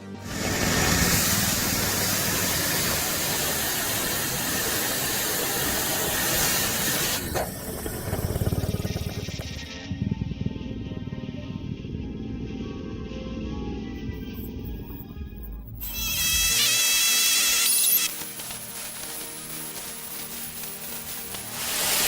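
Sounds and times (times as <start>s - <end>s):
machine hissing: 0.0s - 9.9s, 15.8s - 22.0s
low pulsing rumble: 7.2s - 15.8s.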